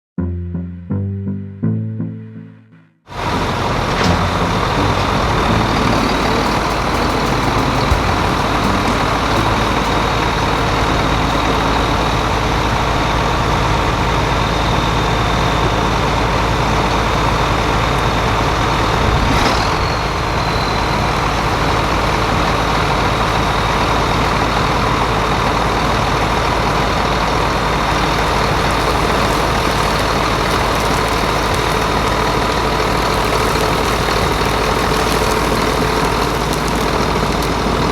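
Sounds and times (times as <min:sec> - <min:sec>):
tractor diesel engine idling: 0:03.1 - 0:19.1, 0:19.8 - 0:37.9
constant high whine: 0:03.2 - 0:25.2.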